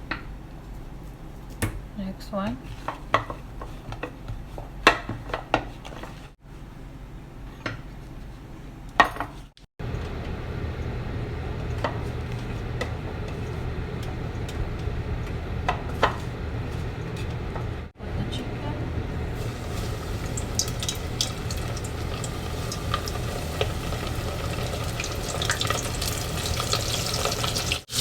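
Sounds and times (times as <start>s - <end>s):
low hum and hiss: 9.8s - 28.0s.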